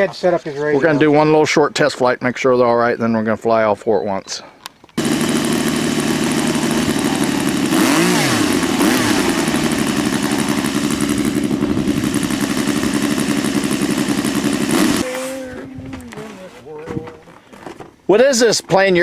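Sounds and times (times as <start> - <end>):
motor running at speed: 5.0 - 15.4.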